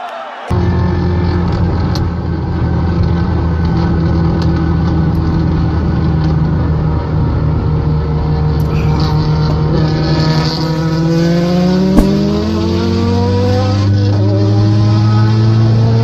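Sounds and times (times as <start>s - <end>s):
car engines droning at speed: 0.5s - 16.0s.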